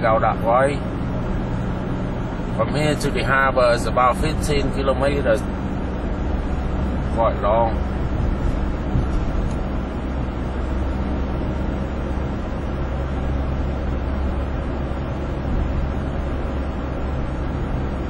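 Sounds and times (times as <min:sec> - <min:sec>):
road noise with tyre hiss: 0:00.0 - 0:18.0
van engine drone: 0:00.0 - 0:18.0.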